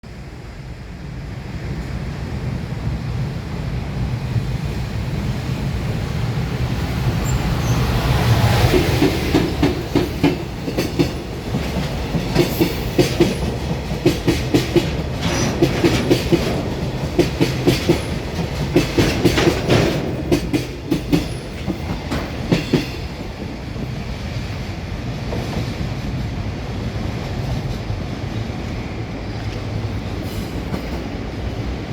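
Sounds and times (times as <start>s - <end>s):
freight train rumble: 0.0s - 31.9s
wheels clattering over rail joints: 6.6s - 28.6s.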